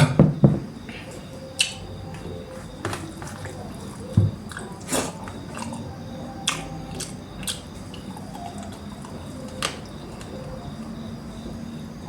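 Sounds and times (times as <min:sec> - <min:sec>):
faint steady background hum: 0:00.0 - 0:12.0
mouth clicks and smacks from chewing: 0:01.6 - 0:01.8, 0:04.5 - 0:10.4.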